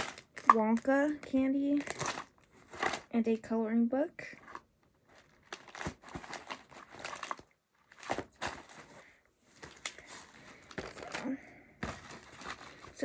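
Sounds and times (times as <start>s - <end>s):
packaging rustling: 0.0s - 3.1s, 4.4s - 13.0s.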